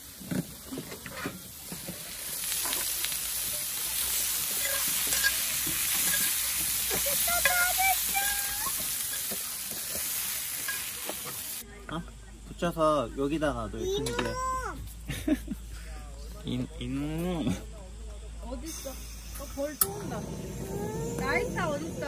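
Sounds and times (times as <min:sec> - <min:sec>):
food sizzling in a pan: 0:00.0 - 0:11.7, 0:18.6 - 0:22.0.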